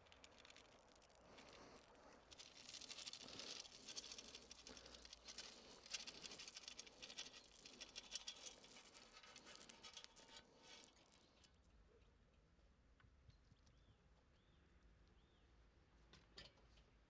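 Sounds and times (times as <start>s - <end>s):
pattering and rustling ticks: 0.0s - 11.5s.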